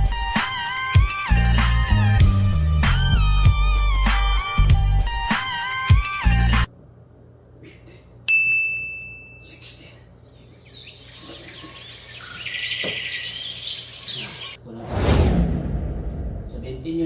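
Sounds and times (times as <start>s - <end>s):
bell-like ding: 8.3s - 9.4s
birds chirping: 9.5s - 14.6s.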